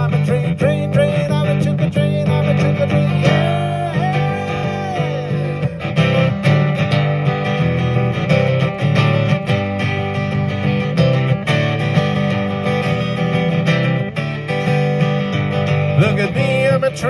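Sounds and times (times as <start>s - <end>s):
person singing: 0.0s - 6.5s, 15.9s - 17.0s
acoustic guitar strumming: 0.0s - 17.0s.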